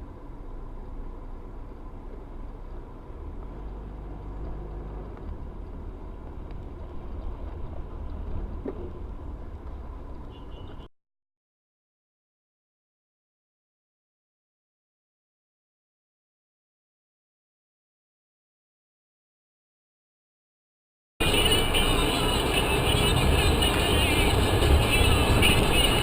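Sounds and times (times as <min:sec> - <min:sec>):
car driving rumble: 0:00.0 - 0:10.9, 0:21.2 - 0:26.0.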